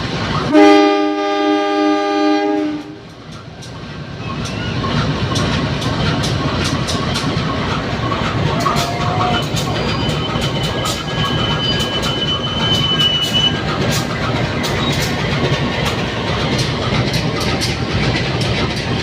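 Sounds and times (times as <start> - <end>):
moving train rumble: 0.0 - 19.0
train horn blast: 0.5 - 3.0
wheels clicking over rail joints: 2.8 - 19.0.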